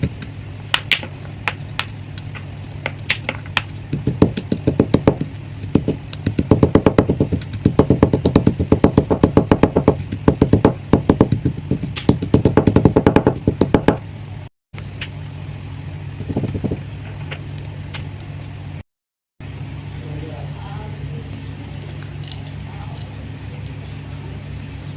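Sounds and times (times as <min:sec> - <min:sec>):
low hum: 0:00.0 - 0:18.8.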